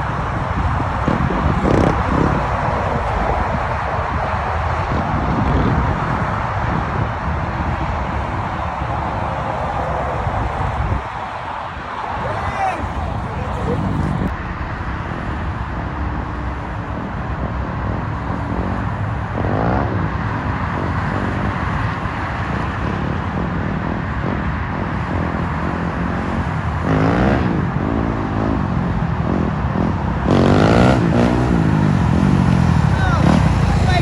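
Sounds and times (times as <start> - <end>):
road and wind noise: 0.0 - 34.0
vehicle engines revving and passing: 0.0 - 34.0.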